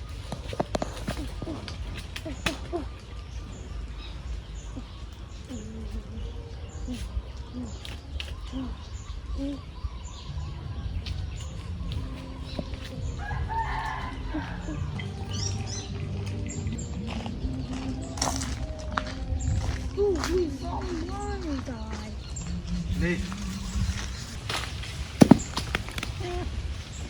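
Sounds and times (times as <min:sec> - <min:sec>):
rooster crowing: 0:13.2 - 0:15.0.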